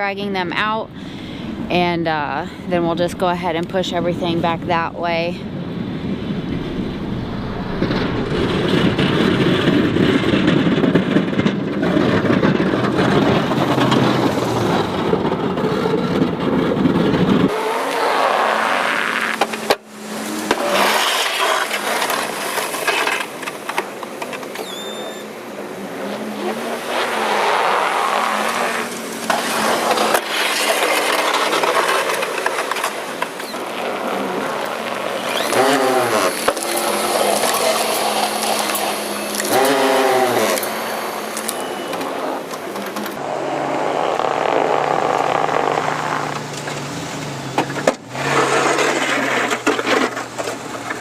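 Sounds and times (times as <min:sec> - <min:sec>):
snowplow engine running: 0:03.1 - 0:51.0
plow scraping snow: 0:06.0 - 0:51.0.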